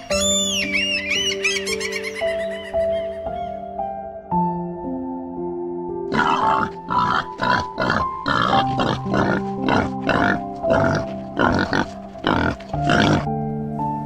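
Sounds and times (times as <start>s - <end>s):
background music: 0.0s - 14.0s
wild boar grunting: 6.1s - 13.3s.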